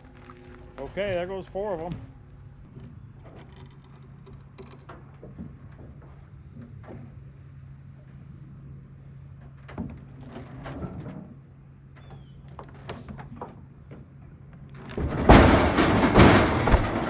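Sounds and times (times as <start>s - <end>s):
logs knocking and clunking: 12.1s - 17.0s
logs tumbling and thudding to ground: 14.7s - 17.0s.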